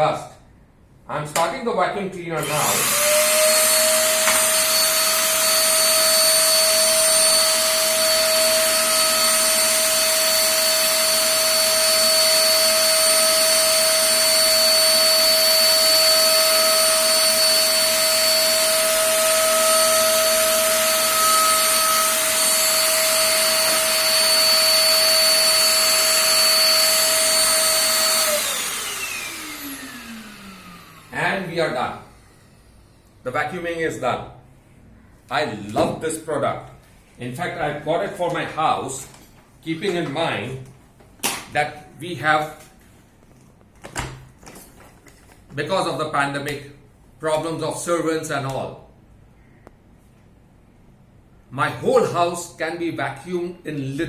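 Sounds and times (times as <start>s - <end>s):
vacuum motor winding down: 2.4s - 32.7s
vacuum cleaner running: 2.4s - 32.9s.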